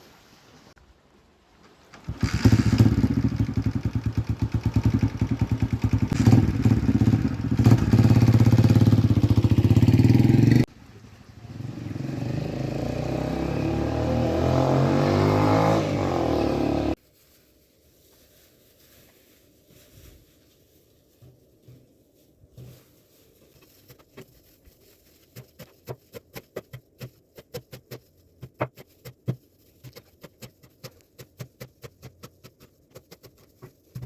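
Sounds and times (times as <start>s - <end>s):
small engine running: 2.0s - 10.6s.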